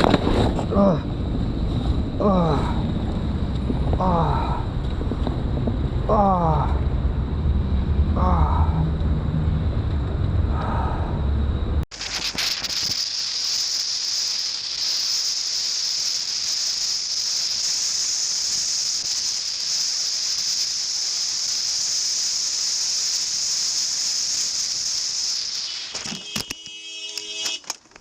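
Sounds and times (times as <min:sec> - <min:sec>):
high-pitched hiss: 0:11.9 - 0:27.6.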